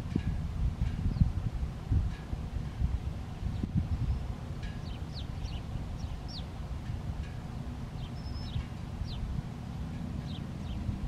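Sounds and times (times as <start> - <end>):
low steady rumble: 0.0 - 11.0
small birds chirping: 3.5 - 6.8, 7.4 - 9.4, 10.2 - 11.0.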